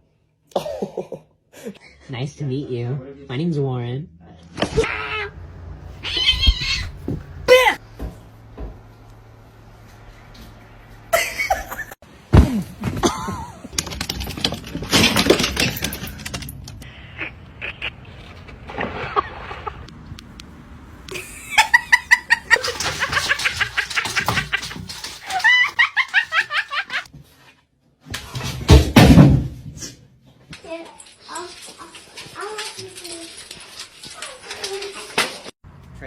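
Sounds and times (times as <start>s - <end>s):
people laughing: 21.1s - 27.1s.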